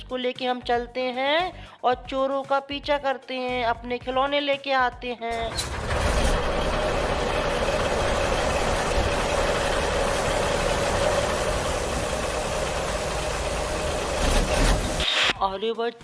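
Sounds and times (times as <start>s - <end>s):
toy truck motor drone: 5.5s - 15.4s.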